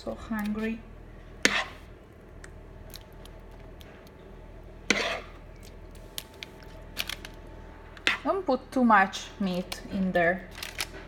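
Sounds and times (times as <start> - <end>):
utensil scraping baking dish: 1.4 - 1.9, 4.9 - 5.4.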